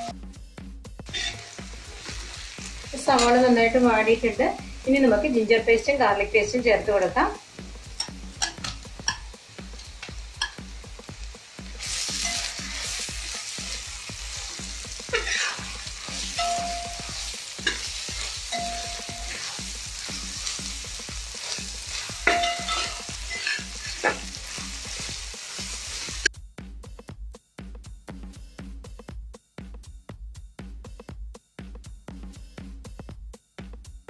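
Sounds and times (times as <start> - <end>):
onions sizzling in hot oil: 1.0 - 26.3
spatula scraping metal pan: 1.1 - 2.1, 14.3 - 20.6, 21.4 - 25.0.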